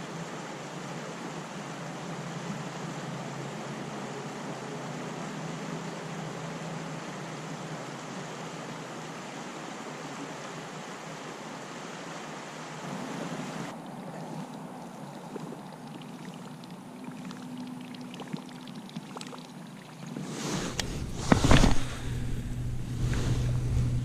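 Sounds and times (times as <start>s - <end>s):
rushing water and wind: 0.0s - 24.0s
small water splashes: 8.1s - 22.1s.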